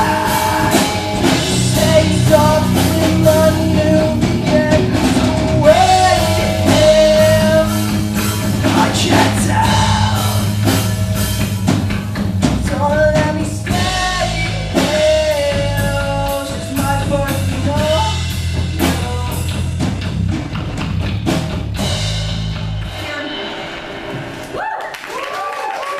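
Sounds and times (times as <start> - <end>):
person singing long notes: 0.0 - 8.0, 8.6 - 10.7
rock band playing live: 0.0 - 24.6.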